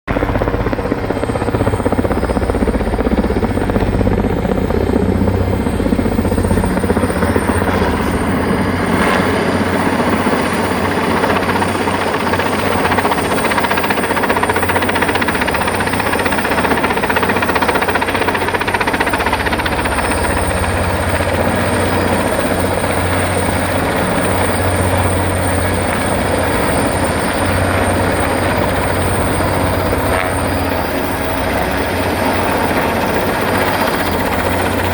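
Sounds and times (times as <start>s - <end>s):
helicopter running: 0.1s - 34.9s.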